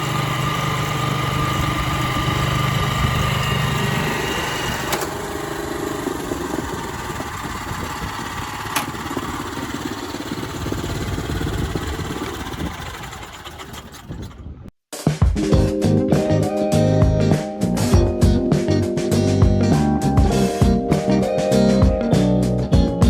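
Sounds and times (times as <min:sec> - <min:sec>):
cultivator engine running: 0:00.0 - 0:14.6
guitar music: 0:15.5 - 0:23.0.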